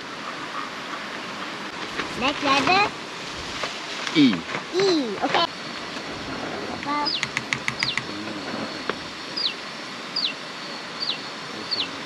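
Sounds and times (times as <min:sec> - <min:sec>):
bird whistling: 0:06.9 - 0:08.2, 0:09.4 - 0:09.6, 0:10.2 - 0:12.0
sharp clicks: 0:07.1 - 0:08.2.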